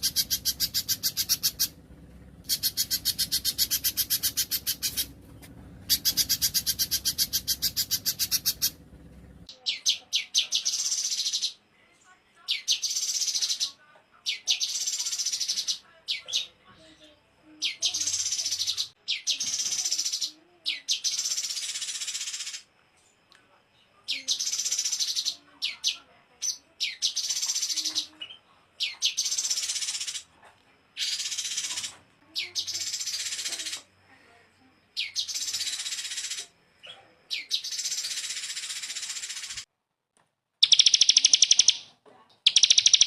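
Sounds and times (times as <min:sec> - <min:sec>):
sharp upswept bird notes: 0:00.0 - 0:01.8, 0:02.5 - 0:05.1, 0:05.9 - 0:08.8, 0:40.6 - 0:41.9, 0:42.5 - 0:43.0
songbird buzzy trill: 0:00.0 - 0:01.8, 0:02.4 - 0:08.8, 0:40.6 - 0:43.0.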